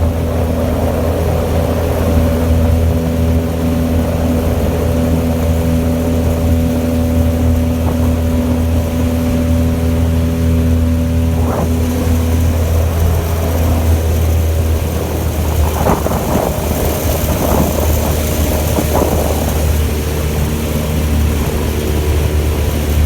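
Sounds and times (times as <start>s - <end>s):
outboard motor running: 0.0s - 23.0s.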